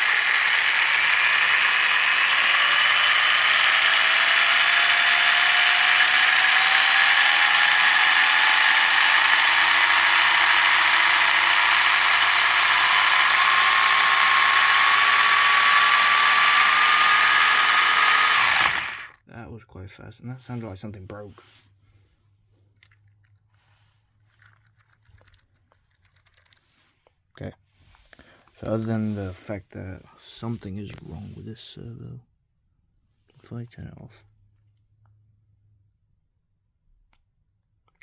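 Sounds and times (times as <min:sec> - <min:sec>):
electric motor whine rising in pitch: 0:00.0 - 0:19.1.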